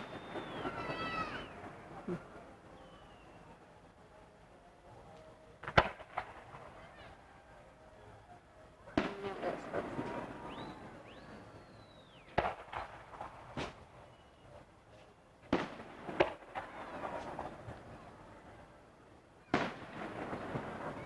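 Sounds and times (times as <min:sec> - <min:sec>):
firework whistle gliding down: 0:00.0 - 0:01.7
fireworks bangs with echo: 0:00.0 - 0:01.8, 0:05.6 - 0:07.1, 0:08.9 - 0:14.0, 0:15.4 - 0:18.2, 0:19.4 - 0:21.0.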